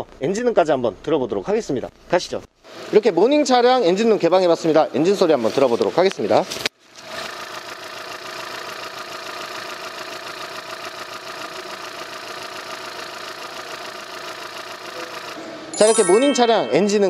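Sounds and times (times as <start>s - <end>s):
car engine idling: 7.2s - 15.3s.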